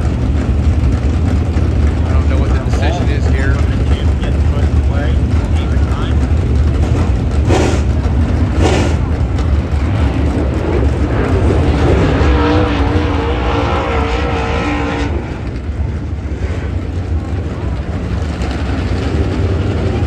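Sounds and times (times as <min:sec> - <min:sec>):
engine holding steady note: 0:00.0 - 0:20.0
race car engines rumbling: 0:00.0 - 0:20.0
sharp bursts of engine noise: 0:02.0 - 0:20.0.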